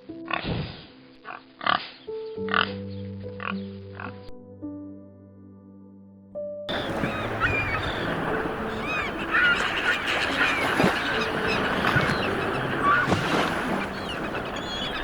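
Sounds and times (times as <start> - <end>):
waterfowl honking: 6.7 - 15.0.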